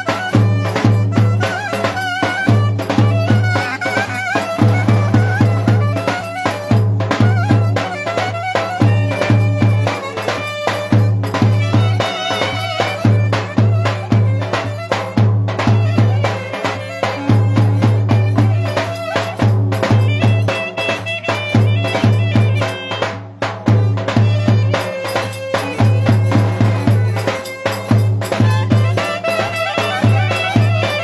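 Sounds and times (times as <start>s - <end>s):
fast folk melody: 0.0s - 31.0s
quick percussion beats: 0.0s - 31.0s.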